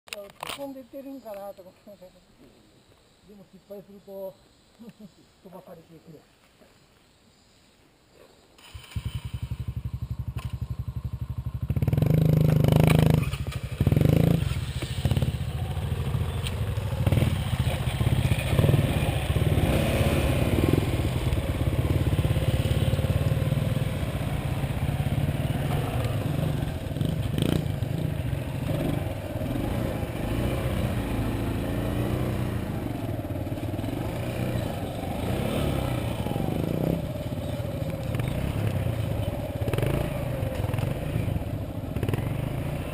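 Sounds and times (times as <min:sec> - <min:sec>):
motorcycle engine running: 0:08.8 - 0:42.9.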